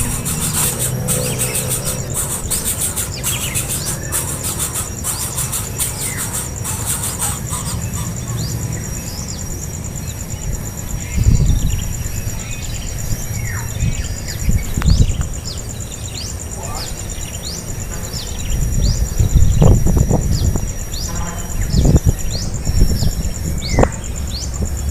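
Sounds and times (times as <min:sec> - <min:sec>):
birds chirping: 0:00.0 - 0:10.2
high pulsing insect buzz: 0:00.0 - 0:24.9.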